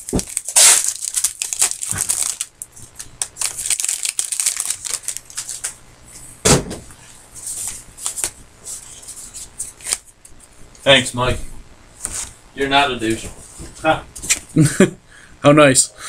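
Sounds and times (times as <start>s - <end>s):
card pack wrappers crinkling: 0.0s - 5.8s, 7.5s - 10.4s
loud knock: 6.4s - 6.8s
cards being handled: 7.4s - 10.4s.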